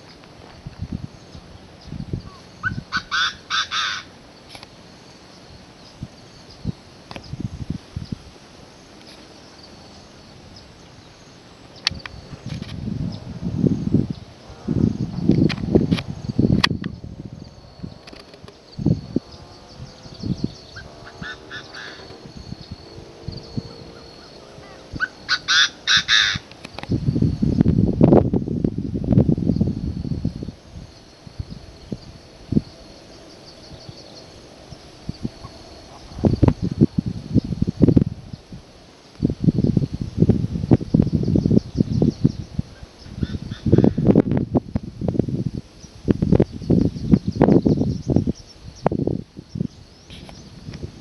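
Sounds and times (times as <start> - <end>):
wild birds calling: 1.1 - 7.4, 17.6 - 27.0, 30.6 - 37.6, 41.0 - 44.2
bird call: 2.2 - 4.6, 20.5 - 22.8, 23.5 - 26.9.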